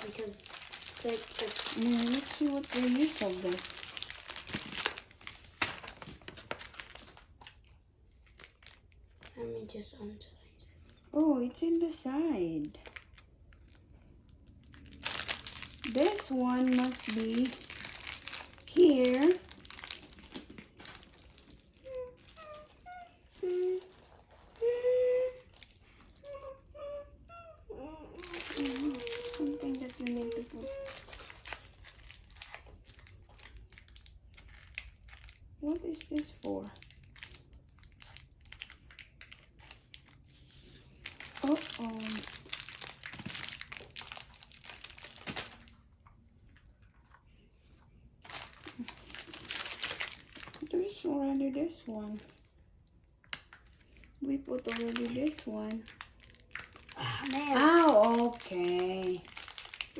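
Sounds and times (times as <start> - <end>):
high voice wordless sounds: 0.0 - 3.6, 27.6 - 31.0, 57.0 - 59.3
plastic packaging crinkling: 0.0 - 9.7, 12.1 - 26.6, 28.1 - 46.8, 48.2 - 52.6, 53.2 - 59.9.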